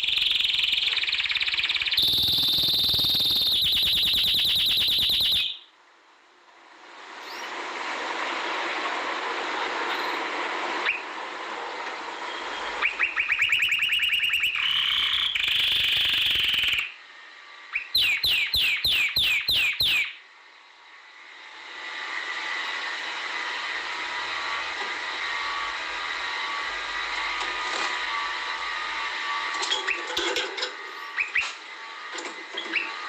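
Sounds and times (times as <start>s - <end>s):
canary singing: 0.0s - 5.7s, 12.8s - 17.0s, 17.7s - 20.2s, 31.0s - 31.4s.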